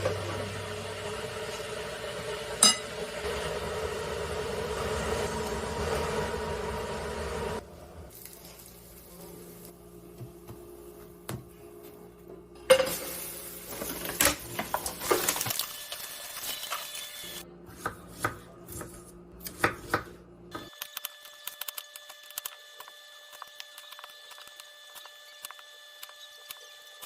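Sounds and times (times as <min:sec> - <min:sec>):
dishes and utensils clinking: 0:02.6 - 0:03.0, 0:12.7 - 0:15.3.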